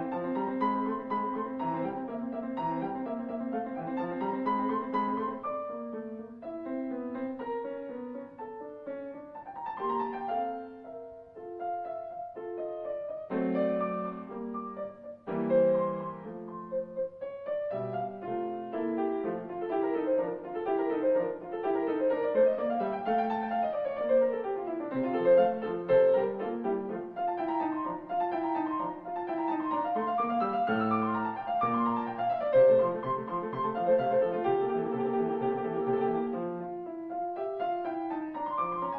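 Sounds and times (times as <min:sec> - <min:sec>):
solo piano music: 0:00.0 - 0:38.9.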